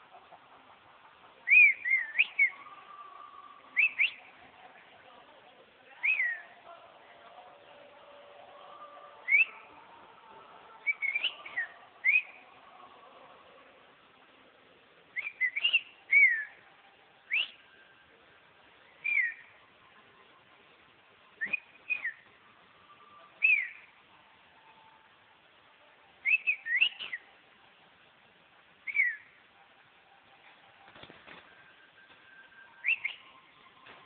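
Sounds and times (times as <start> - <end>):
fledgling bird whistled chirps: 1.4 - 4.3, 6.0 - 6.6, 9.2 - 9.7, 10.8 - 12.5, 15.2 - 16.6, 17.3 - 17.8, 18.9 - 19.6, 21.4 - 22.3, 23.2 - 24.0, 26.2 - 27.3, 28.8 - 29.4, 32.3 - 33.6.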